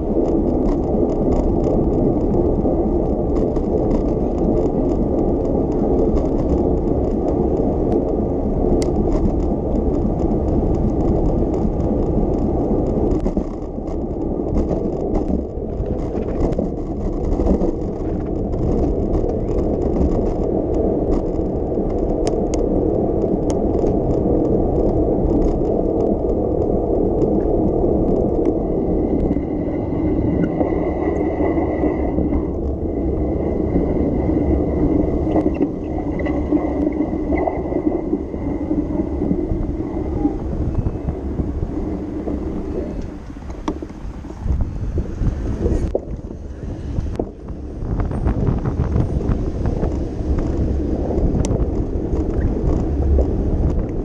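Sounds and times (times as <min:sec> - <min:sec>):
bicycle road and wind noise: 0:00.0 - 0:54.0
small rattles and clicks: 0:00.0 - 0:54.0
thin high whine: 0:28.8 - 0:43.4.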